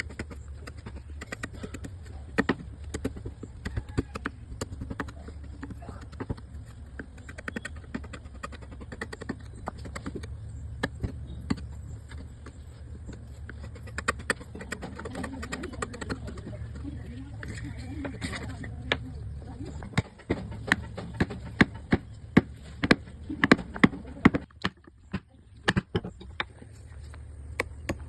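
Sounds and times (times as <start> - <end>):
carving tools tapping wood: 0.0 - 16.8
steady low hum: 0.0 - 28.0.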